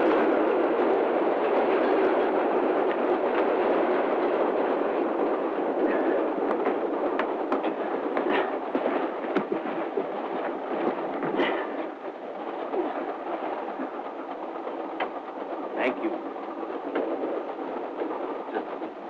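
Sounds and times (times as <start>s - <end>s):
railway carriage rolling: 0.0s - 19.0s
sharp knocks and clicks: 6.4s - 15.5s, 16.2s - 19.0s.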